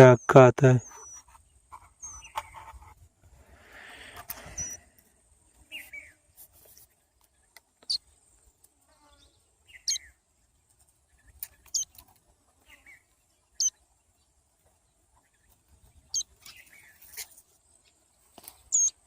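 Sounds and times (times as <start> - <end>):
nestling bird cheeping: 0.1 - 1.4, 2.0 - 2.6, 4.4 - 4.9, 7.8 - 8.0, 9.7 - 10.2, 12.8 - 13.8, 16.0 - 17.2, 18.7 - 19.0.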